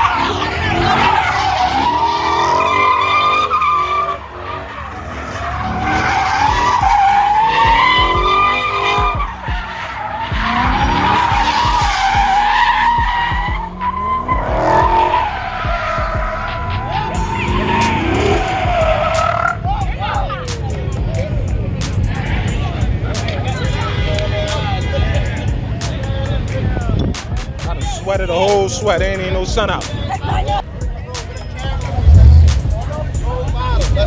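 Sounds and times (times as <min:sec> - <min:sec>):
car tyres squealing: 0:00.0 - 0:34.0.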